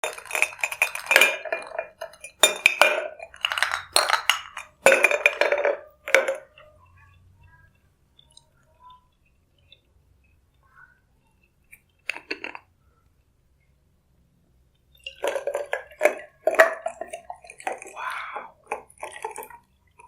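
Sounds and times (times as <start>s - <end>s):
glassware and utensils clinking: 0.0s - 7.2s, 14.9s - 20.0s.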